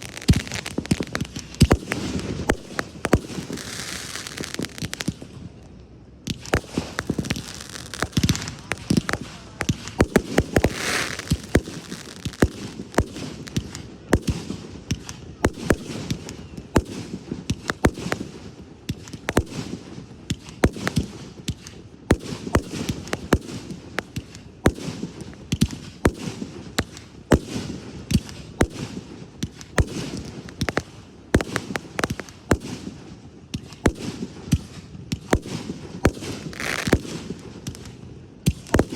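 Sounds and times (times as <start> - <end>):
continuous low rumble: 0.0 - 38.9
fireworks bangs and crackling: 0.0 - 38.9.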